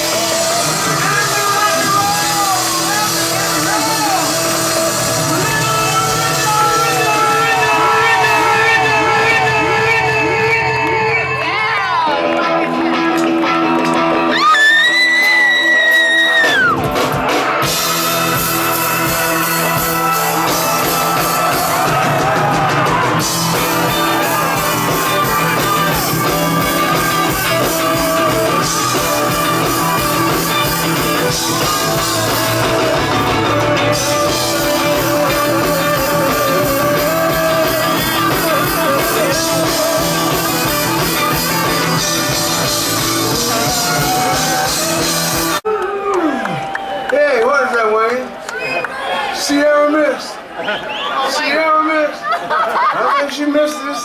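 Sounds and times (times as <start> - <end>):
person singing: 0.0 - 13.1, 17.9 - 45.7
electric guitar: 0.0 - 45.6
rock and roll music: 0.0 - 46.7
drums: 0.0 - 46.9.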